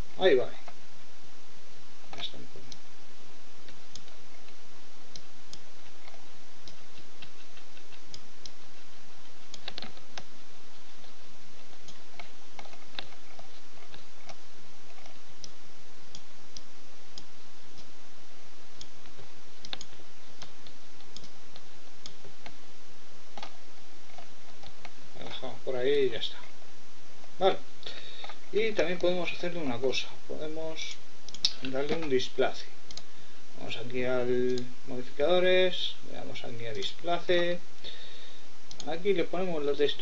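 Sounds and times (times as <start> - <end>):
steady hiss: 0.0 - 40.0
mouse and keyboard clicks: 9.4 - 17.9, 18.8 - 22.6.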